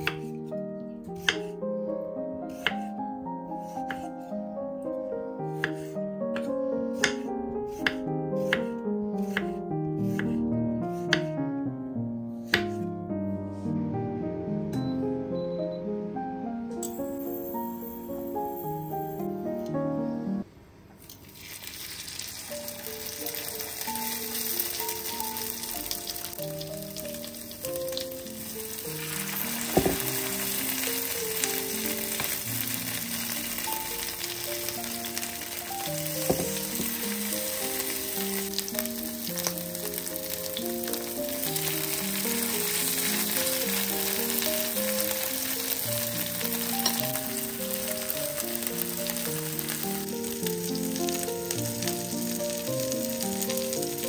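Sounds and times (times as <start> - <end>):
soft background music: 0.0 - 20.5, 22.4 - 54.0
batter sizzling in a frying pan: 21.0 - 54.0.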